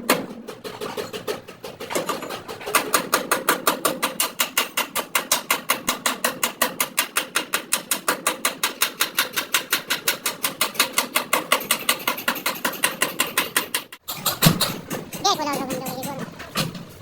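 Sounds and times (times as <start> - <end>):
rapid tapping on sheet metal: 0.0 - 17.0.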